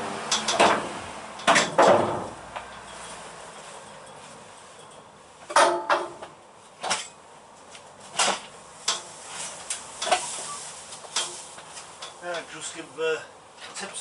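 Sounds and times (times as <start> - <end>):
metal tools clinking: 2.6 - 5.6.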